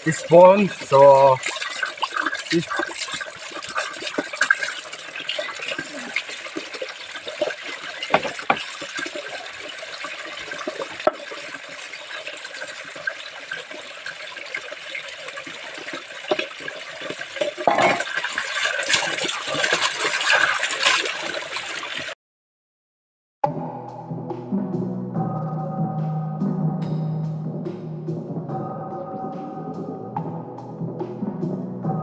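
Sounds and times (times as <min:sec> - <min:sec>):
water running and splashing: 0:00.0 - 0:22.2.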